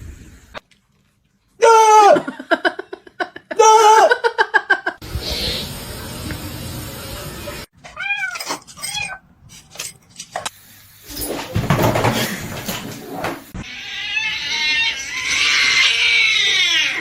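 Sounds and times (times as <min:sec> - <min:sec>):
cat meowing: 0:07.8 - 0:09.2.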